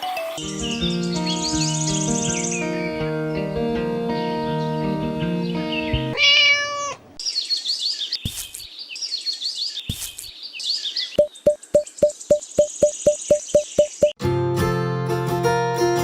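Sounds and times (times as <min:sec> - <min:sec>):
high bird chirping: 0:00.4 - 0:03.1, 0:05.4 - 0:14.2
cat meowing: 0:06.1 - 0:07.2
steady ticking beat: 0:11.2 - 0:14.2.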